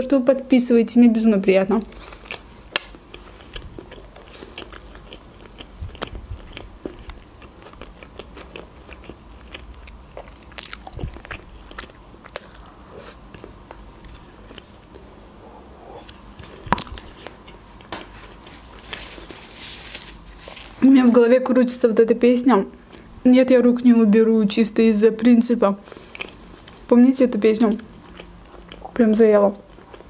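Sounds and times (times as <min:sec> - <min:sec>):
crunchy chewing: 0:01.8 - 0:15.1, 0:15.9 - 0:20.7, 0:25.8 - 0:27.0, 0:27.7 - 0:30.0.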